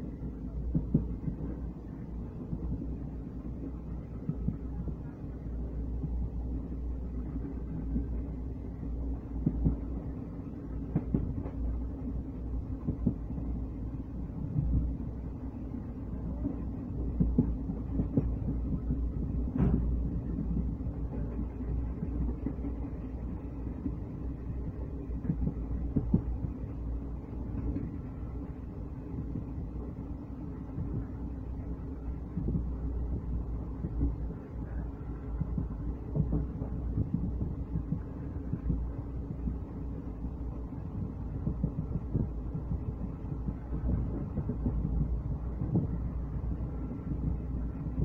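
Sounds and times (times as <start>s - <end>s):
train wheels rumbling on rails: 0.0s - 48.0s
train knocks: 5.9s - 15.0s, 16.1s - 28.0s.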